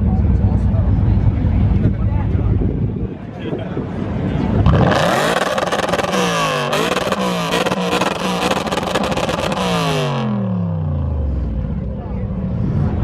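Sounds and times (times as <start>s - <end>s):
sports car engine revving: 4.2s - 13.0s.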